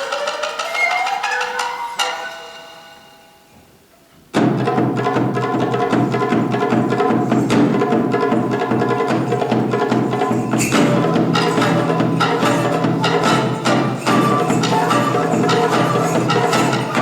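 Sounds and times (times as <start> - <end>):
fast drumming: 4.4 - 17.0.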